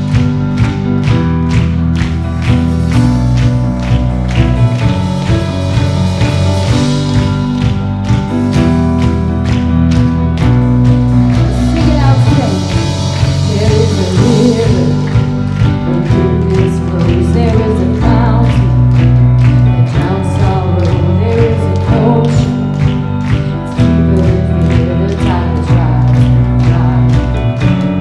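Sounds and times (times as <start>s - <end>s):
held bass line: 0.0s - 28.0s
steady drumbeat: 0.0s - 28.0s
worship band playing: 0.0s - 28.0s
person singing: 11.4s - 28.0s.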